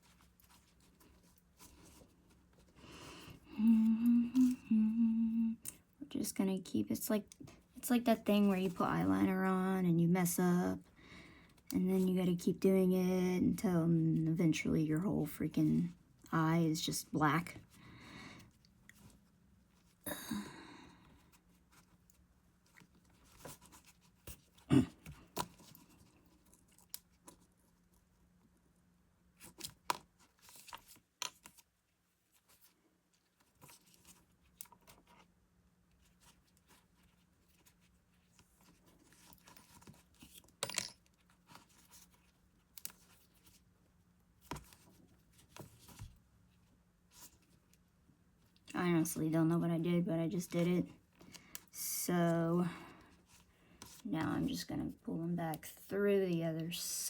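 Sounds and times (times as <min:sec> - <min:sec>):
hands handling yarn: 0:00.0 - 0:03.4, 0:51.0 - 0:55.7
faint low hum: 0:00.0 - 0:57.0.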